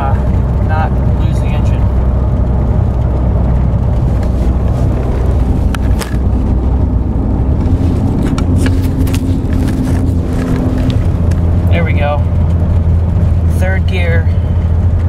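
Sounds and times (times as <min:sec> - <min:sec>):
engine and road rumble: 0:00.0 - 0:15.0
higher engine tone: 0:00.0 - 0:15.0.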